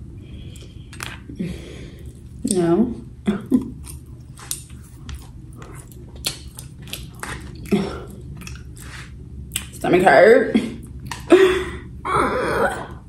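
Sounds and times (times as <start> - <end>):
person chewing food: 0.3 - 2.5, 3.4 - 9.8, 10.8 - 11.3.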